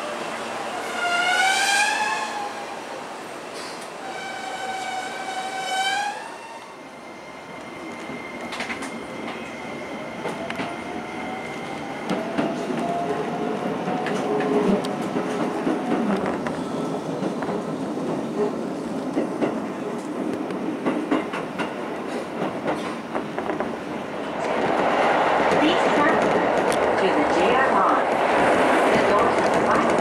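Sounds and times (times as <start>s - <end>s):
train pulling out: 0.0s - 18.5s.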